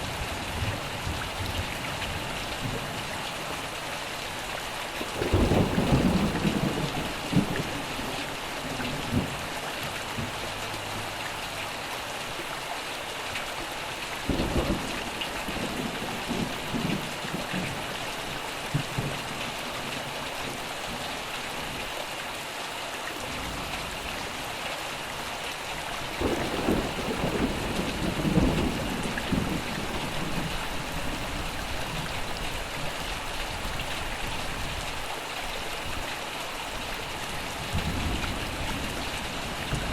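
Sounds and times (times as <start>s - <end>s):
steady rain: 0.0s - 39.9s
low thunder rolls: 5.2s - 7.9s, 26.2s - 32.1s.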